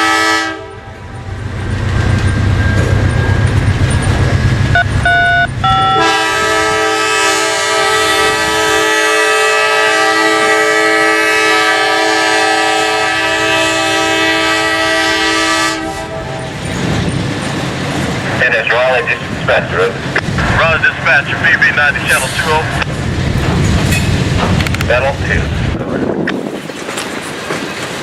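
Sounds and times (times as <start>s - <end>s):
locomotive air horn: 0.0s - 0.9s, 5.0s - 16.6s.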